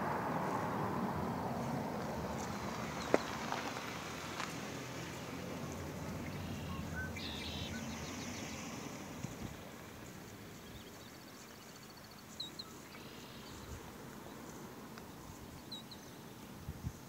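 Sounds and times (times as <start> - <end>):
outdoor hiss: 2.2 - 17.0
small birds calling: 5.7 - 14.6.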